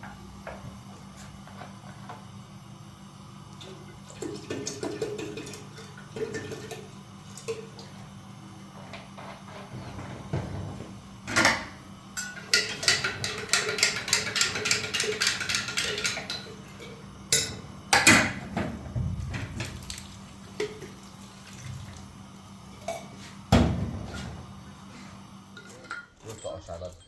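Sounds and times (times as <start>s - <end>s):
dishes and cutlery clattering: 12.2s - 18.3s.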